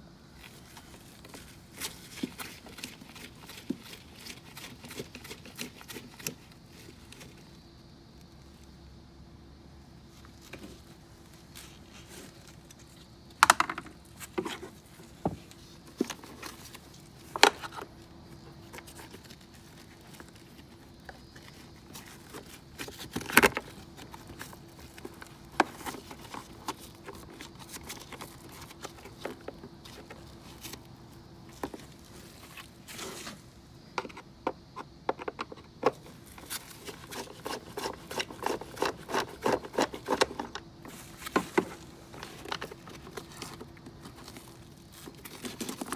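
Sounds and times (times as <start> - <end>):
faint steady hum: 0.0 - 45.9
hand tools knocking and scraping: 33.9 - 44.4.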